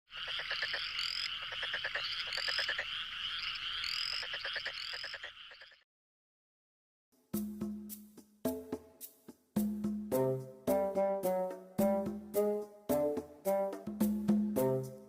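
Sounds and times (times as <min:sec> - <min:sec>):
chorus of frogs calling: 0:00.1 - 0:05.8.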